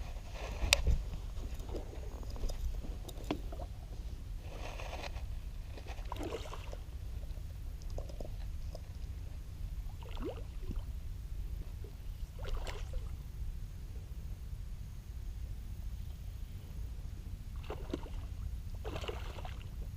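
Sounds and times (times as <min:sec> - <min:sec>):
steady low rumble: 0:00.0 - 0:19.9
water lapping against boat hull: 0:00.1 - 0:05.1, 0:05.8 - 0:09.2, 0:09.8 - 0:10.9, 0:11.6 - 0:13.2, 0:17.5 - 0:19.9.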